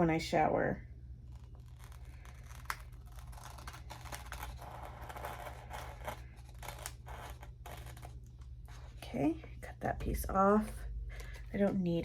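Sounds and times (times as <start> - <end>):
scissors cutting paper: 1.3 - 8.2.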